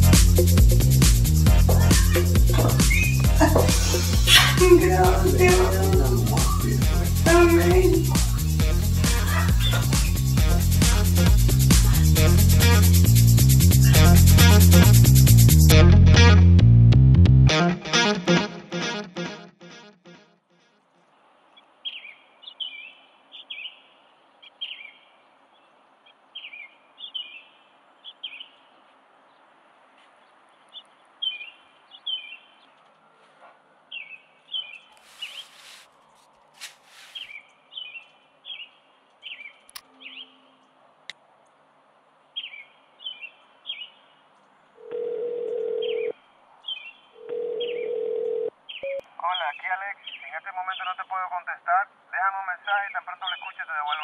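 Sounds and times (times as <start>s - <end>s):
small birds chirping: 0.0s - 12.3s, 21.4s - 40.8s, 42.3s - 44.8s, 48.6s - 51.6s, 52.6s - 54.0s
faint outdoor hiss: 20.7s - 54.0s
brief hissing sweeps: 35.0s - 35.9s, 36.6s - 37.3s
telephone ringback tone: 44.8s - 46.1s, 47.2s - 49.0s.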